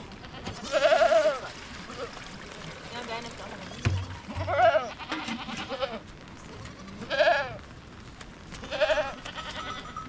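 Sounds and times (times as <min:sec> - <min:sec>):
goats bleating: 0:00.2 - 0:01.5, 0:04.3 - 0:06.0, 0:07.0 - 0:07.6, 0:08.6 - 0:10.0.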